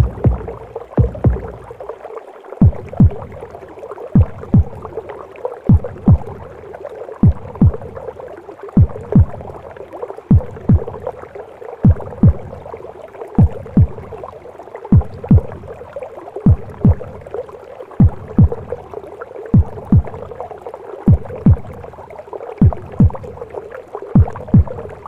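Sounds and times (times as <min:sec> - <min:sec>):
heartbeat double thump: 0:00.0 - 0:01.8, 0:02.6 - 0:03.3, 0:04.2 - 0:04.8, 0:05.7 - 0:06.4, 0:07.2 - 0:07.9, 0:08.8 - 0:09.4, 0:10.3 - 0:11.0, 0:11.8 - 0:12.5, 0:13.4 - 0:14.1, 0:14.9 - 0:15.6, 0:16.5 - 0:17.1, 0:18.0 - 0:18.7, 0:19.6 - 0:20.2, 0:21.1 - 0:21.8, 0:22.6 - 0:23.3, 0:24.2 - 0:24.9.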